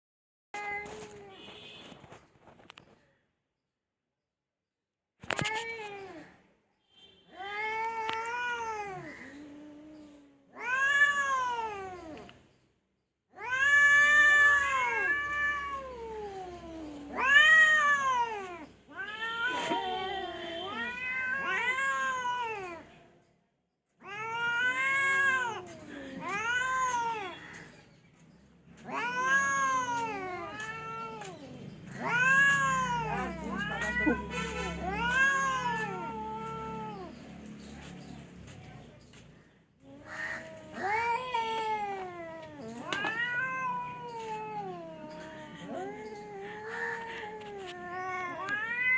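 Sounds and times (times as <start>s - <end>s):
cat meowing: 7.3s - 12.3s, 13.4s - 22.9s, 24.0s - 27.6s, 28.8s - 37.2s, 39.9s - 48.9s.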